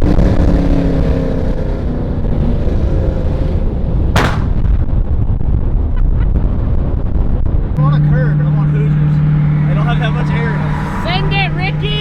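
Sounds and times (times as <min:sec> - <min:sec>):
loud sharp exhaust bang: 0:04.1 - 0:04.9
car exhaust revs falling: 0:07.8 - 0:12.0.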